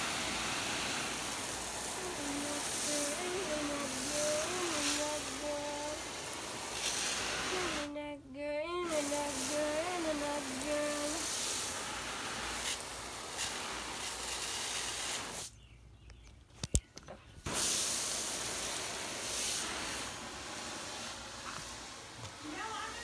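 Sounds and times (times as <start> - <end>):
steady hiss: 0.0 - 15.6, 17.4 - 23.0
person humming: 1.9 - 6.1, 7.4 - 11.3.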